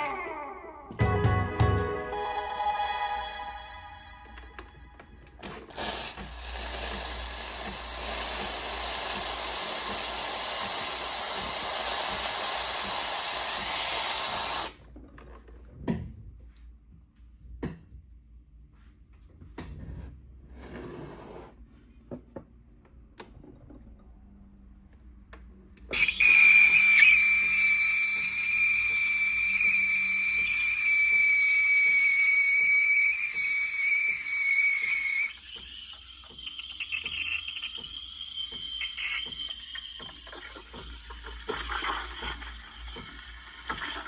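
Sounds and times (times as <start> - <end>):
music: 0.0 - 5.2
espresso machine running: 5.7 - 14.8, 26.0 - 44.0.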